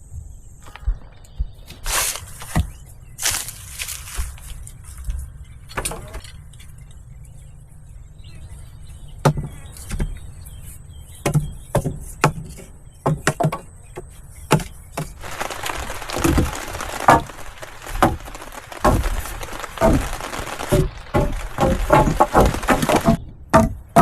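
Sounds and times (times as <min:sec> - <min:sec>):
wood knocking and cracking: 0:11.2 - 0:13.7, 0:14.5 - 0:24.0
steady hiss: 0:15.1 - 0:23.2.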